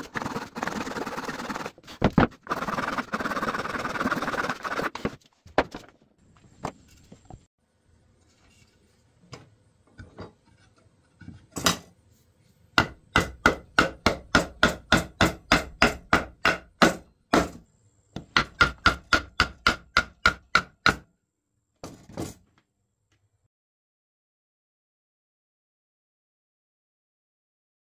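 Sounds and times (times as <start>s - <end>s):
hammer striking wood: 12.8s - 17.6s, 18.2s - 21.1s.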